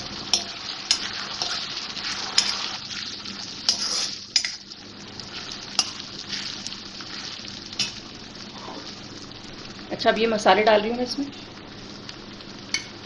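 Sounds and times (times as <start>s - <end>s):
onions sizzling in oil: 0.0s - 13.0s
metal spoon scraping pan: 3.7s - 4.6s.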